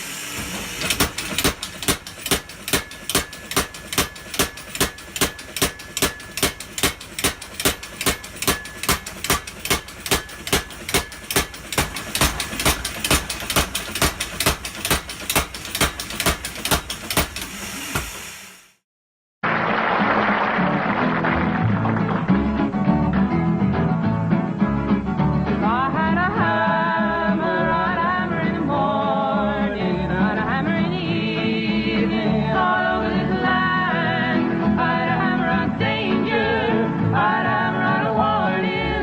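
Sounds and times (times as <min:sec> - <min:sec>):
power hammer striking: 0:00.0 - 0:18.7
machine running noise: 0:00.0 - 0:18.8.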